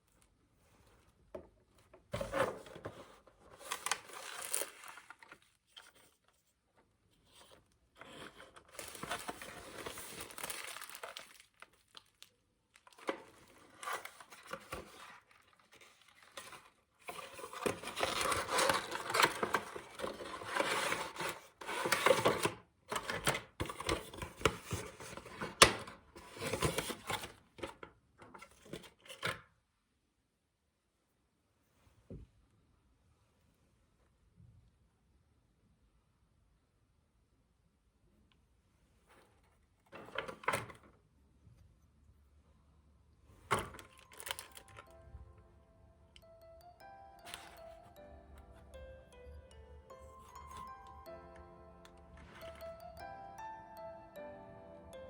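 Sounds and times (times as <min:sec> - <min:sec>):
packaging tearing and crumpling: 0:03.6 - 0:05.8, 0:08.7 - 0:22.3, 0:43.8 - 0:45.0.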